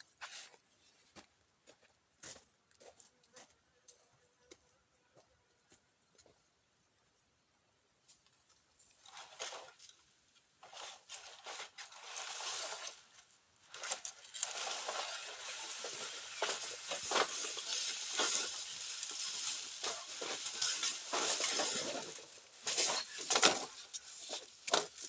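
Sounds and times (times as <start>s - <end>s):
dry leaves rustling and crunching: 10.6s - 25.0s.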